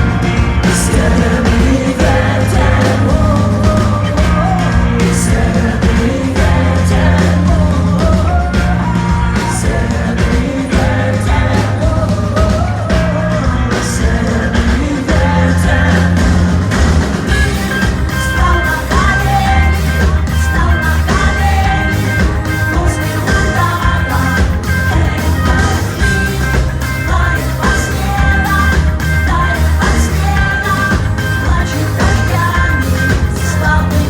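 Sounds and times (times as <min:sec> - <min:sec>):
live rock band playing: 0:00.0 - 0:34.0
woman singing: 0:17.3 - 0:34.0.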